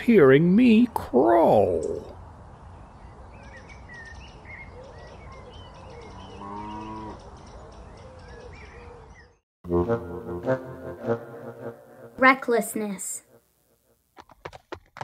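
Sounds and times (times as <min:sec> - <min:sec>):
small birds chirping: 0:00.7 - 0:09.4
cow mooing: 0:06.1 - 0:07.2.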